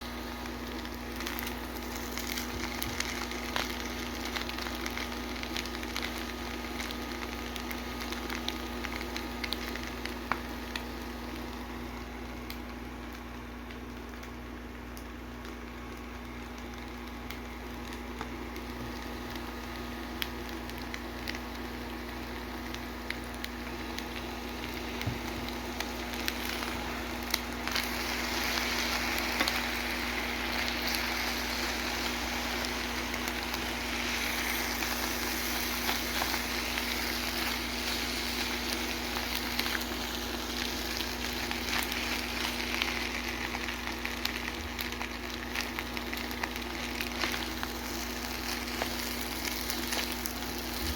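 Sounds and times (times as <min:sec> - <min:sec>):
food sizzling in a frying pan: 0:00.0 - 0:50.9.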